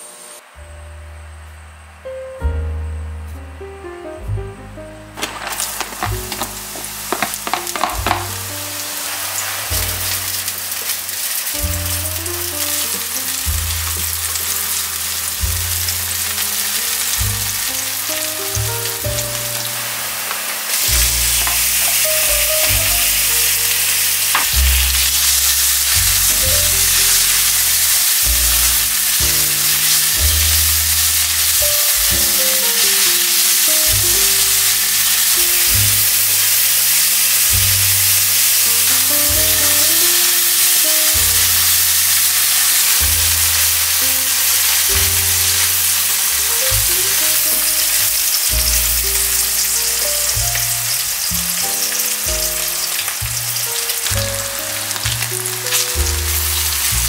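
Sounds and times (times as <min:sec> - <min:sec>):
background music with bass line: 0:00.6 - 0:36.7, 0:37.4 - 0:57.0
green onion sizzling in oil: 0:05.1 - 0:57.0.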